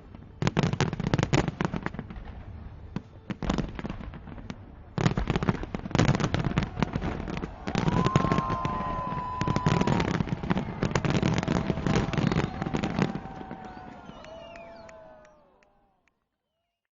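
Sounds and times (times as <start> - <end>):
fireworks bangs and crackling: 0.0 - 15.0
crowd whooping: 6.1 - 16.1
long held call: 7.5 - 16.1.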